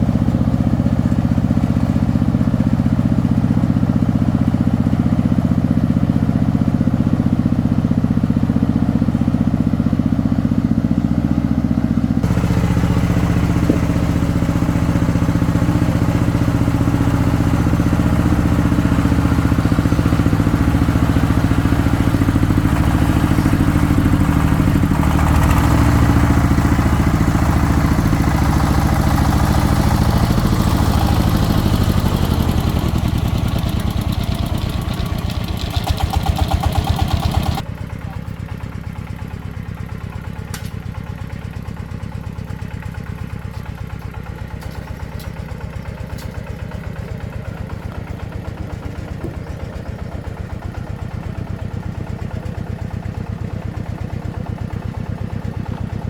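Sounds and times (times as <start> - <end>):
single-cylinder diesel engine running: 0.0 - 56.0.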